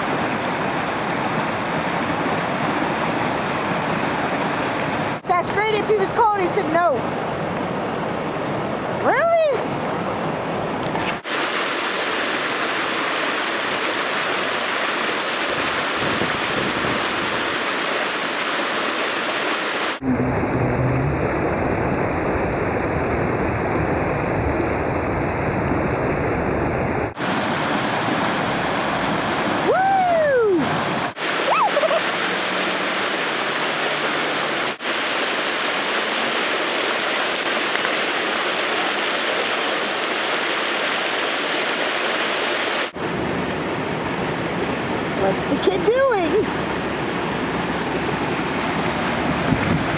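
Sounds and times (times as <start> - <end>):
whitewater rapids rushing: 11.1 - 22.7, 27.1 - 49.9
person calling out: 20.0 - 21.3.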